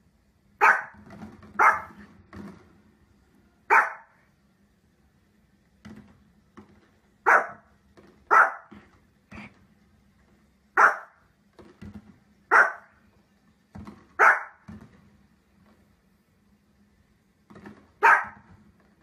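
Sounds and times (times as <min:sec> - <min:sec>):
small dog barking: 0:00.6 - 0:01.0, 0:01.6 - 0:02.0, 0:03.7 - 0:04.2, 0:07.2 - 0:07.7, 0:08.3 - 0:08.8, 0:10.8 - 0:11.2, 0:12.5 - 0:13.0, 0:14.2 - 0:14.6, 0:18.0 - 0:18.5.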